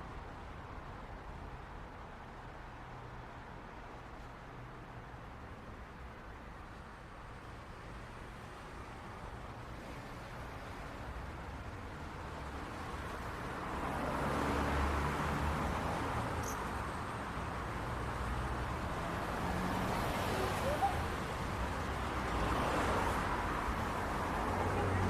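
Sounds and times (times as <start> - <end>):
car traffic hum: 0.0 - 25.0
faint chirp: 16.4 - 16.7.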